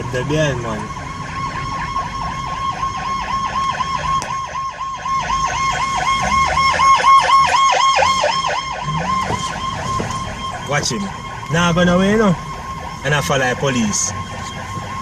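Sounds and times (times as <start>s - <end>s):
police siren yelping: 0.0s - 15.0s.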